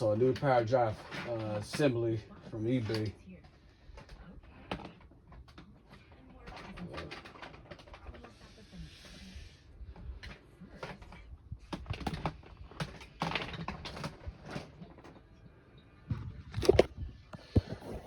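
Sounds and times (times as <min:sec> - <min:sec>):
plastic parts clicking and knocking: 0:04.0 - 0:08.3, 0:10.2 - 0:15.3, 0:16.5 - 0:18.0.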